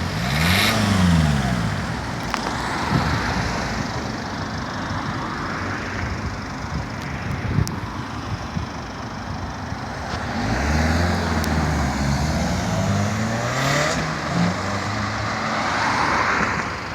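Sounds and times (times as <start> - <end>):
sports car engine revving: 0.0 - 2.4, 10.0 - 16.1
road and tyre noise: 0.0 - 16.9.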